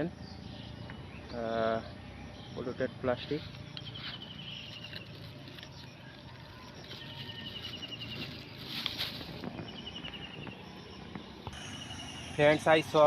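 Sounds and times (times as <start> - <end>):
plastic crinkling: 4.7 - 9.6
high rapid trill: 11.6 - 13.0.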